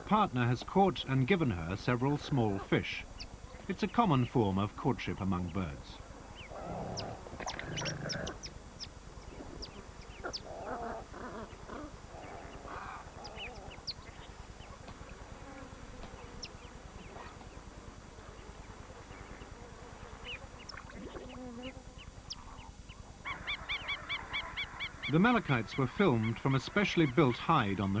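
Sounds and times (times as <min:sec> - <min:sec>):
birds chirping: 0:00.0 - 0:19.5, 0:21.7 - 0:28.0
lower rough bird calls: 0:06.3 - 0:14.8, 0:22.0 - 0:28.0.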